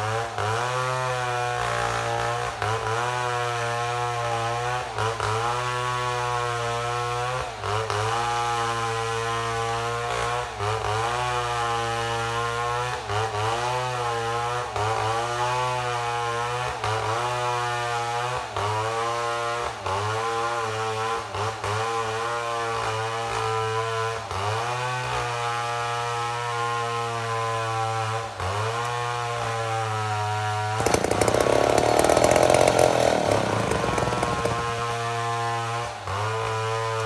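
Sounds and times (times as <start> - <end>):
chainsaw cutting a log: 29.8 - 35.6.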